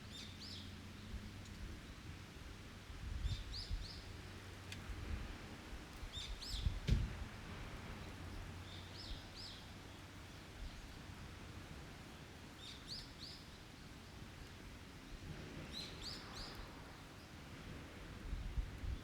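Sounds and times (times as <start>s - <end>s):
low forest rumble: 0.0s - 19.0s.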